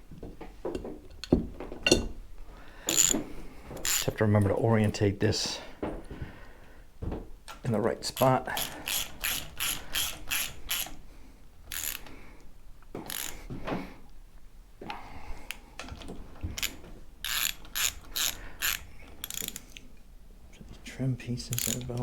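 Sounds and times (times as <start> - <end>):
ratchet wrench clicking: 2.9 - 3.2, 3.8 - 4.1, 8.2 - 11.0, 11.7 - 12.1, 13.1 - 13.4, 16.6 - 19.8, 21.5 - 22.0.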